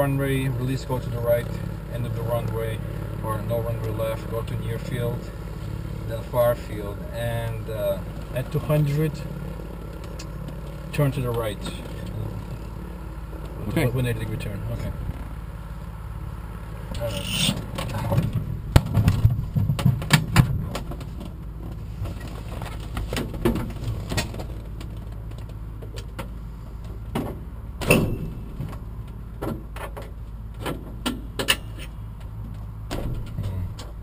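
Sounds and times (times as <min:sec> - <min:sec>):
plane engine idling hum: 0:00.0 - 0:34.0
clicks and knocks in cockpit: 0:17.5 - 0:34.0.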